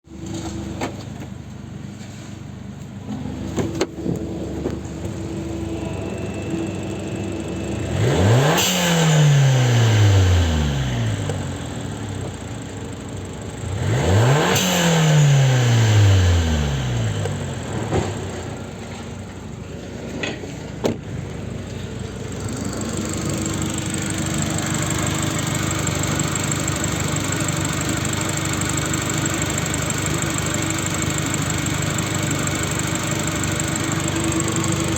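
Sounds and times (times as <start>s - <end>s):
car engine idling and revving: 0.0s - 34.9s.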